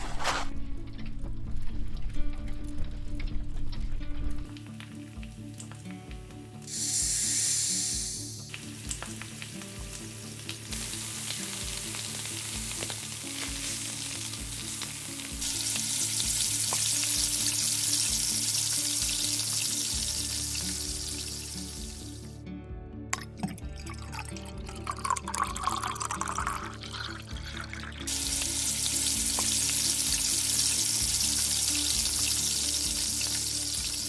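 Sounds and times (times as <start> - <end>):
soft music with low beat: 0.0 - 34.0
food sizzling in pan: 6.6 - 22.2, 26.4 - 34.0.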